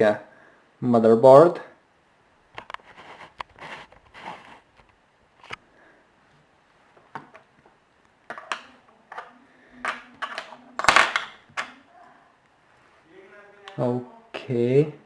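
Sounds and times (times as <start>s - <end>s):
small parts clattering on work surface: 8.3s - 11.7s.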